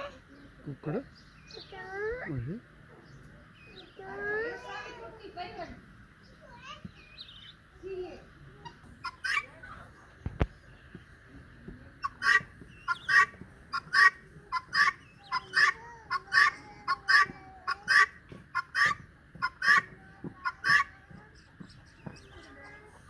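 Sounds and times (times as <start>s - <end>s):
turkey calling sharply: 8.6s - 9.5s, 12.0s - 20.9s.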